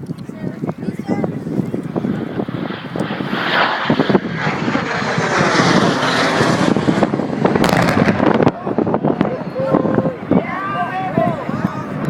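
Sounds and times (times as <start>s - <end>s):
jet fighter roar passing: 1.9s - 11.2s.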